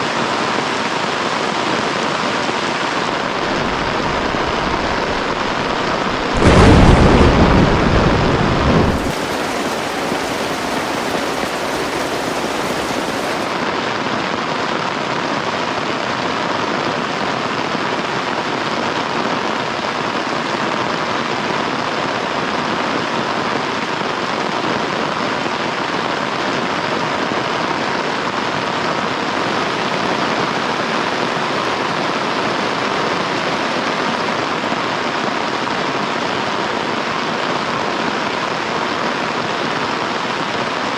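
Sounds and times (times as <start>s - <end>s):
heavy rain: 0.0s - 40.9s
deep rumble: 3.4s - 13.2s.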